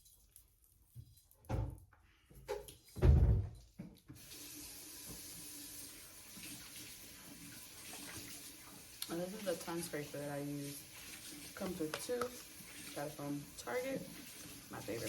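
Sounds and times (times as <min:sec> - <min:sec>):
tap water running into basin: 0:03.8 - 0:15.0.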